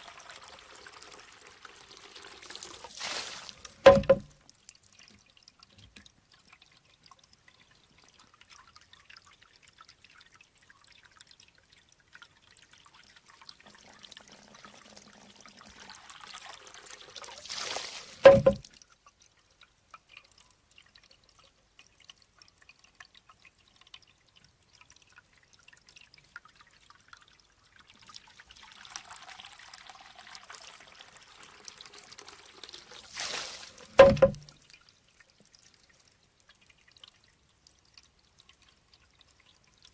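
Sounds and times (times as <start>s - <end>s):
water pouring spill: 0.0s - 5.6s, 12.6s - 18.8s, 26.0s - 35.0s
water trickling: 0.0s - 39.9s
bamboo knocking on stone: 3.8s - 4.3s, 18.2s - 18.6s, 34.0s - 34.5s.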